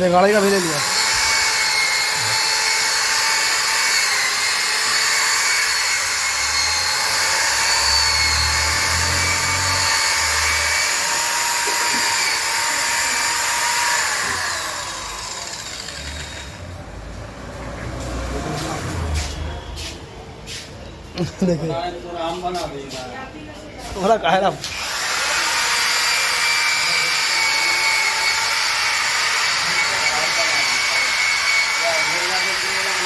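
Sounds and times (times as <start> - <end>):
electric power tool whining: 0.0 - 16.8, 24.6 - 33.0.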